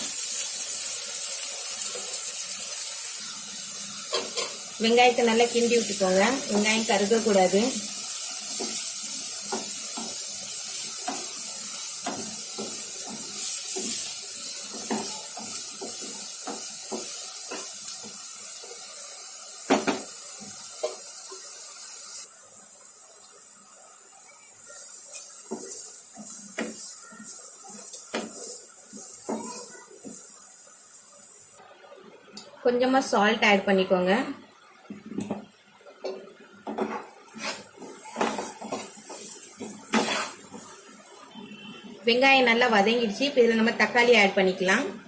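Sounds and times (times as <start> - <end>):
onions sizzling in oil: 0.0 - 31.6, 32.8 - 45.0
spoon scraping a pan: 4.1 - 4.6, 36.8 - 40.7.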